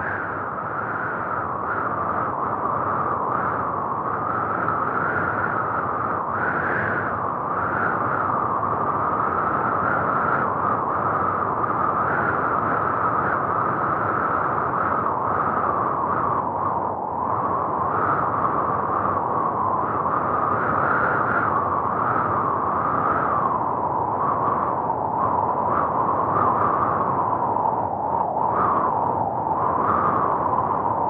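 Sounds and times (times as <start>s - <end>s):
rushing road and wind noise: 0.0s - 31.0s.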